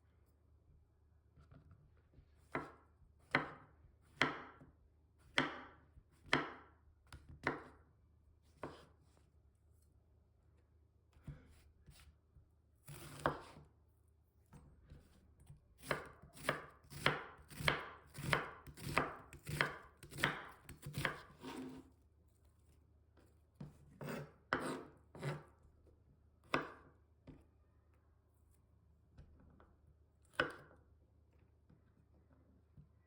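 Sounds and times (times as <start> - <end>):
knife chopping on cutting board: 2.5 - 4.6, 5.3 - 7.8, 8.6 - 8.9, 12.8 - 13.7, 15.8 - 21.8, 23.6 - 25.5, 26.4 - 26.9, 30.3 - 30.7.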